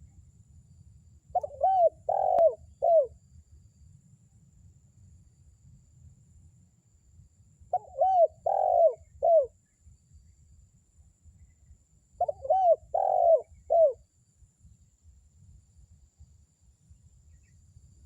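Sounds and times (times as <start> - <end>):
dove cooing: 1.4 - 3.1, 7.7 - 9.5, 12.2 - 14.0.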